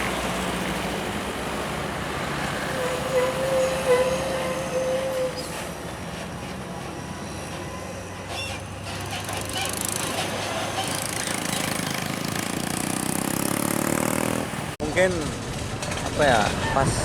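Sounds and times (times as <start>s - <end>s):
diesel truck engine drone: 0.0s - 3.2s
tyre and road noise: 0.0s - 17.0s.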